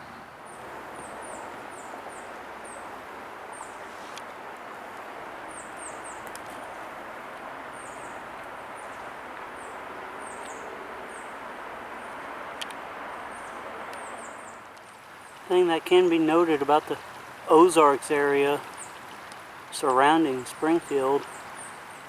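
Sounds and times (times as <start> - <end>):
distant highway traffic: 0.0 - 22.0
small birds chirping: 0.0 - 22.0
faint clicks: 6.2 - 6.6, 12.6 - 12.8, 18.6 - 19.5.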